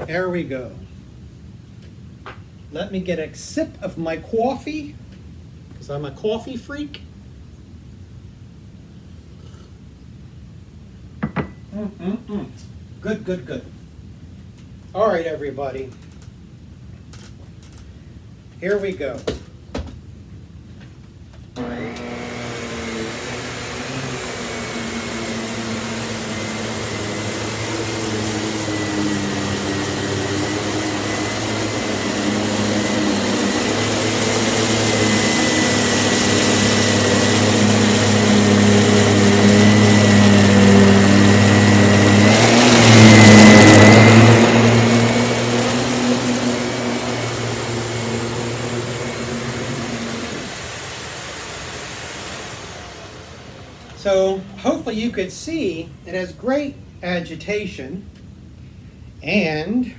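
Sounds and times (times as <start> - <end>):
vacuum motor whine: 21.6 - 55.2
stick vacuum running: 21.6 - 55.4.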